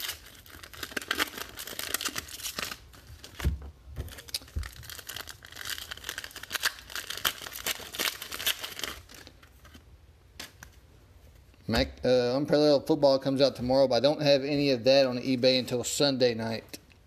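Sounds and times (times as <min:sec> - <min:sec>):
plastic wrappers crinkling and tearing: 0:00.0 - 0:09.6.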